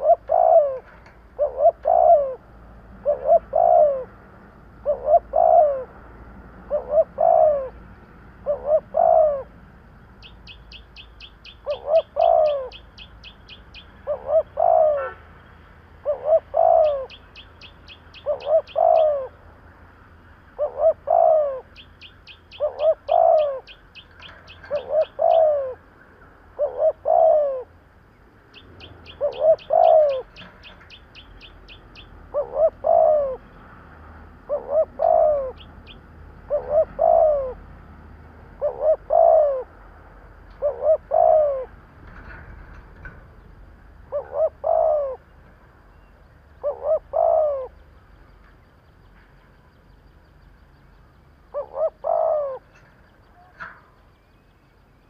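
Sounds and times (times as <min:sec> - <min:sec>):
dove cooing: 0:00.0 - 0:04.2, 0:04.8 - 0:09.6, 0:10.2 - 0:15.2, 0:16.0 - 0:19.4, 0:20.6 - 0:25.9, 0:26.5 - 0:27.8, 0:28.6 - 0:33.5, 0:34.4 - 0:37.7, 0:38.5 - 0:39.8, 0:40.5 - 0:42.8, 0:44.0 - 0:45.3, 0:46.6 - 0:47.8, 0:51.5 - 0:53.9
small bird rapid high chirps: 0:10.2 - 0:14.6, 0:16.4 - 0:19.3, 0:28.5 - 0:32.8.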